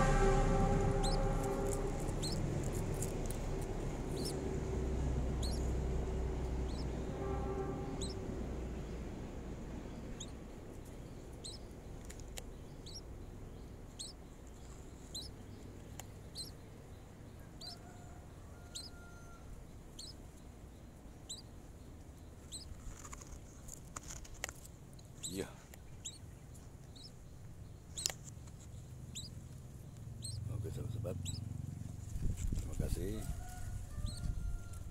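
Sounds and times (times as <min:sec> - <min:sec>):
nestling bird cheeping: 0:00.0 - 0:03.1, 0:04.1 - 0:04.4, 0:05.3 - 0:05.8, 0:06.6 - 0:09.0, 0:09.9 - 0:10.4, 0:11.2 - 0:16.6, 0:27.9 - 0:29.4, 0:30.1 - 0:30.6, 0:31.2 - 0:31.5
low rumble: 0:00.0 - 0:17.4.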